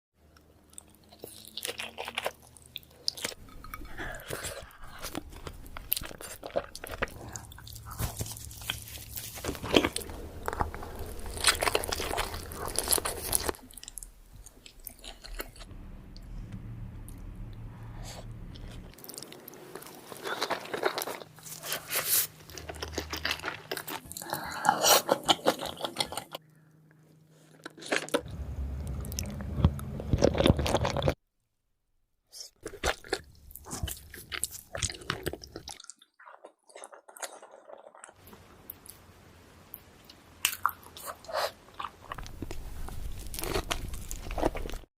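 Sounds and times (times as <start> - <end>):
wet chewing and crunching: 0.3 - 15.7, 18.5 - 26.5, 27.4 - 31.2, 32.4 - 39.0, 39.7 - 44.9.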